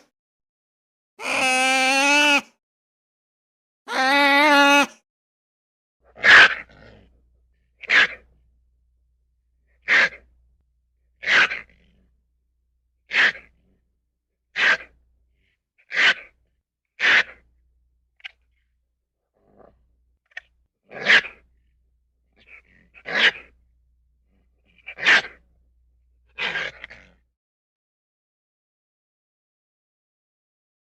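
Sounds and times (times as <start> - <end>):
animal sneezing snorts: 9.8 - 10.3, 11.2 - 12.0, 13.1 - 13.6, 14.6 - 15.0, 15.9 - 16.3, 17.0 - 17.4, 20.9 - 21.4, 22.4 - 23.5, 26.4 - 27.2.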